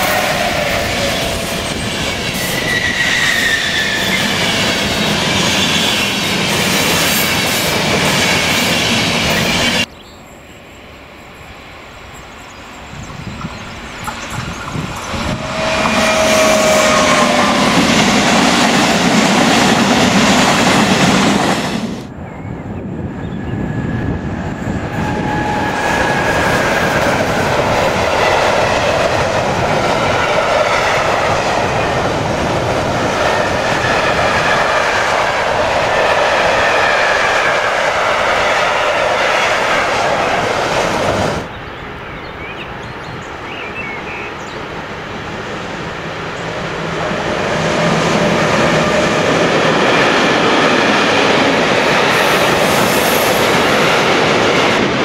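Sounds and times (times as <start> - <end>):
wavering high squeal: 0.0 - 4.6, 11.5 - 18.1
freight train rumbling past: 0.0 - 55.0.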